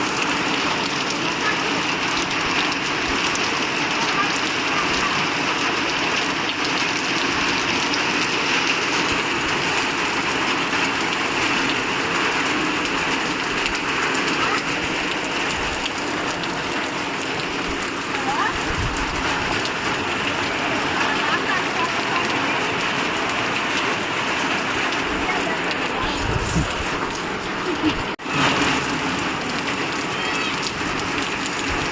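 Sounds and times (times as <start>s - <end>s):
heavy rain falling: 0.0s - 31.9s.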